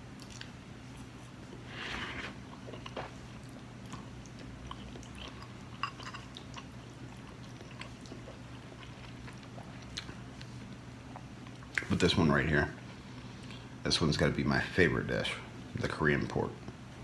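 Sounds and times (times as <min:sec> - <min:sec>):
steady low hum: 0:00.0 - 0:17.0
person chewing food: 0:00.1 - 0:11.9.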